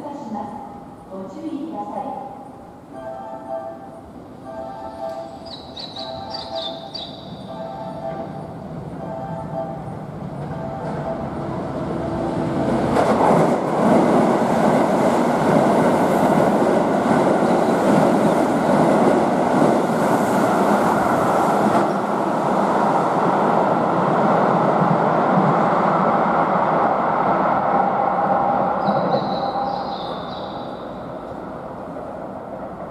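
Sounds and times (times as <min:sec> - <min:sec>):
train wheels on rails: 0:08.2 - 0:32.9.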